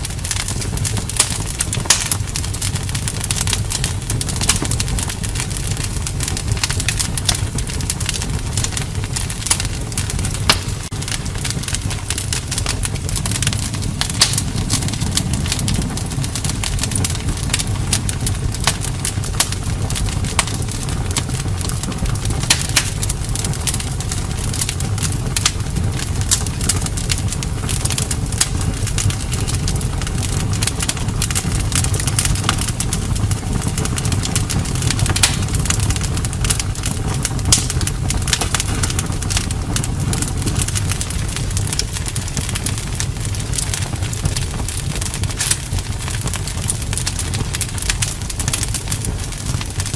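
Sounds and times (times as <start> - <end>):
campfire crackling and popping: 0.0 - 49.9.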